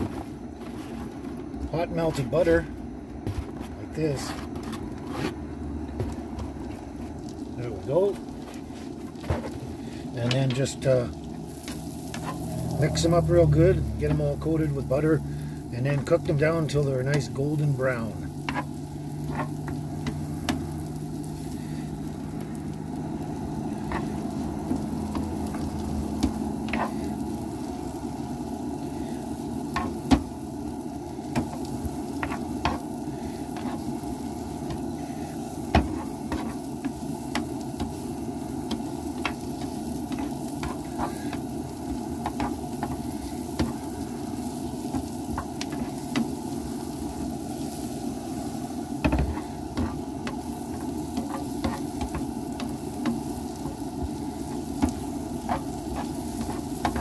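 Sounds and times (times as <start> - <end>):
mushrooms sizzling in butter: 0.0 - 57.0
spoon scraping a pan: 11.6 - 12.8, 18.4 - 20.7, 38.7 - 41.5, 54.4 - 57.0.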